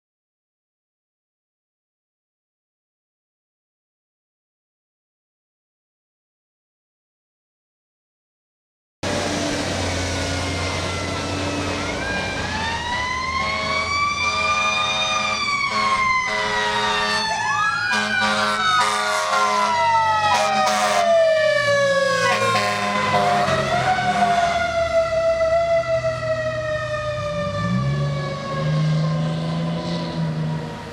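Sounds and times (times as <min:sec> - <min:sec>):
diesel engine revving: 0:09.0 - 0:30.9
fire engine sirens wailing: 0:09.0 - 0:30.9
pulsed siren blasts: 0:09.0 - 0:30.9.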